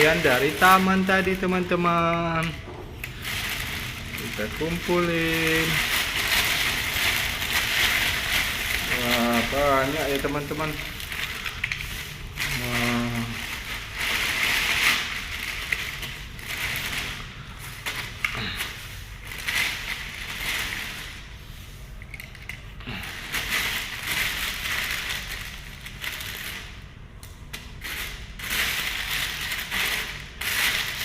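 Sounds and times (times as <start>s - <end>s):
plastic toys clattering: 0.0s - 31.0s.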